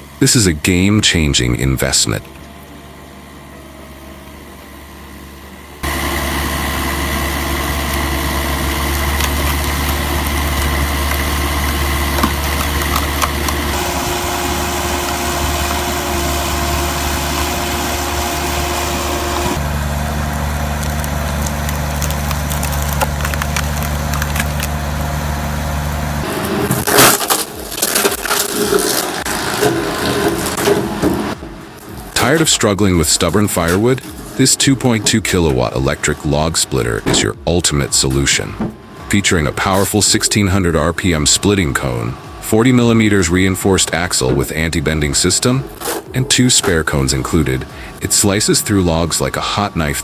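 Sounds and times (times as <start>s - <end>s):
log splitter engine running: 0.0s - 50.0s
wood cracking and splintering: 5.9s - 39.9s.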